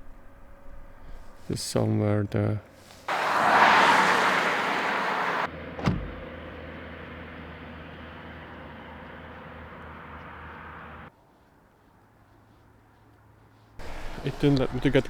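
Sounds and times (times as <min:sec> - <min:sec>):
car engine humming: 0:02.7 - 0:11.1, 0:13.8 - 0:15.0
car door shutting: 0:04.3 - 0:06.3.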